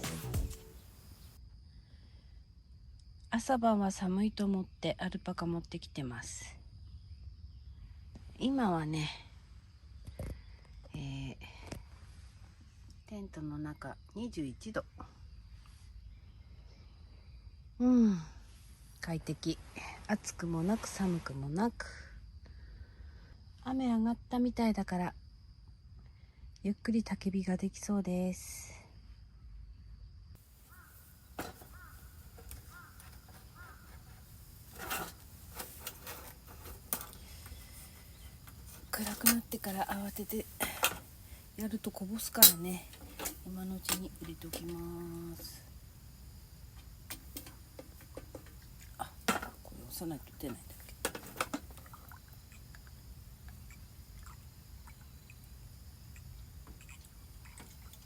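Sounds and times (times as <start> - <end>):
camping gear rustling and clicking: 30.4 - 54.0
faint bird calling: 30.6 - 34.5
low steady hum: 30.9 - 58.0.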